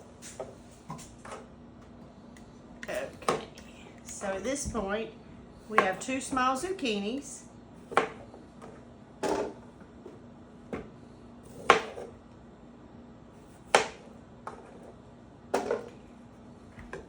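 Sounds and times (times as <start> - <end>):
knife chopping on cutting board: 13.7 - 14.0.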